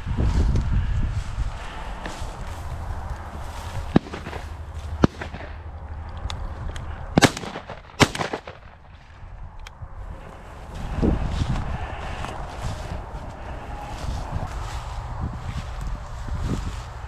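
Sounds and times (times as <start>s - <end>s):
wind on microphone: 0.0s - 17.0s
sharp cracks: 2.0s - 10.4s.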